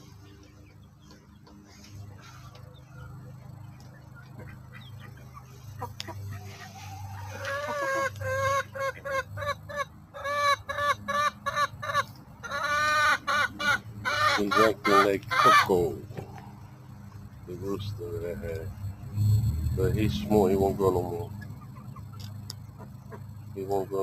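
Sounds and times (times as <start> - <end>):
chicken squawking: 4.4 - 16.0.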